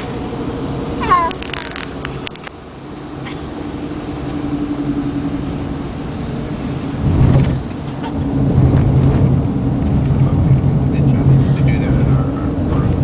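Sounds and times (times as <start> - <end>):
car engine and road drone: 0.0 - 13.0.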